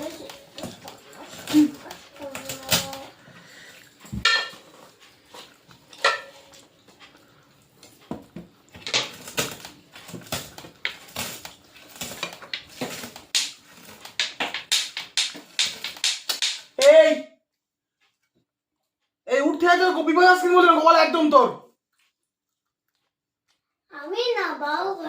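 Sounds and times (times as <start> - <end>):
plates and utensils clinking: 0.0 - 7.2.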